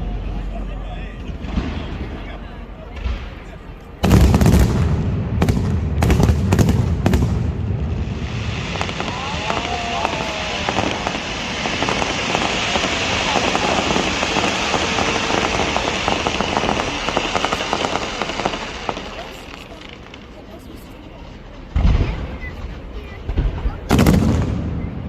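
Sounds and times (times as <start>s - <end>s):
fireworks crackling: 0.0s - 25.0s
firework shells booming: 2.9s - 20.2s.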